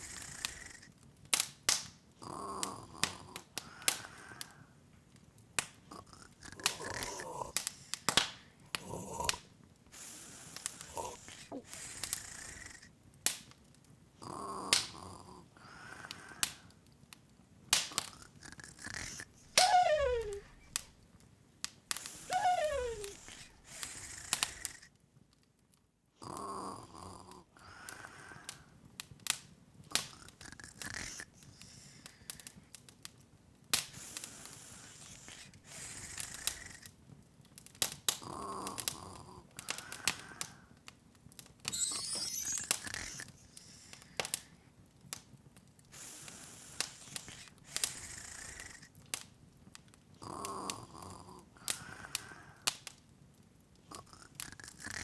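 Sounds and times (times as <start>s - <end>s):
log fire crackling: 0.0s - 25.8s, 27.8s - 55.0s
soft pitched tone: 41.7s - 43.1s
rising sparkly shimmer: 41.7s - 43.3s.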